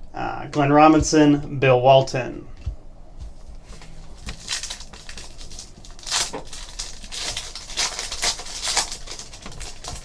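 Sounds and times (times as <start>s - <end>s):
trading cards rustling: 2.5s - 10.0s.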